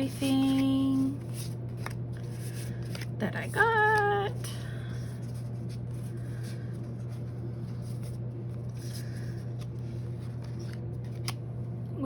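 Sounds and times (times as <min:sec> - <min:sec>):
paper and packaging rustling: 0:00.0 - 0:04.3
low room tone hum: 0:00.0 - 0:12.0.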